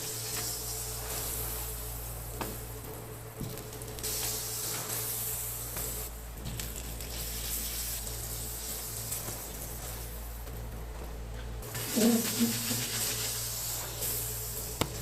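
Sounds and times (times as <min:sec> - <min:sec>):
constant low hum: 0:00.0 - 0:15.0
food sizzling on a griddle: 0:07.0 - 0:09.8, 0:11.6 - 0:14.8.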